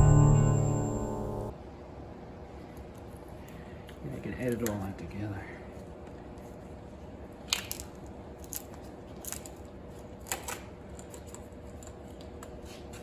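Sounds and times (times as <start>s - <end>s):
steady low hum: 0.0s - 1.5s.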